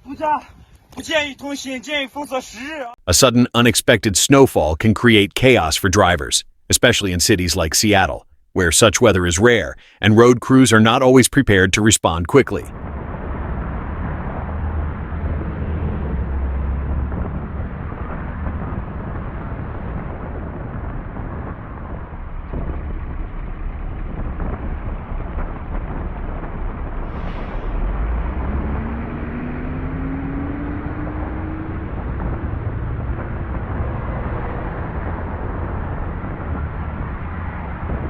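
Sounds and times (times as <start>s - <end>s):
car engine and road rumble: 0.0s - 38.0s
engine revving: 12.8s - 21.8s, 27.1s - 38.0s.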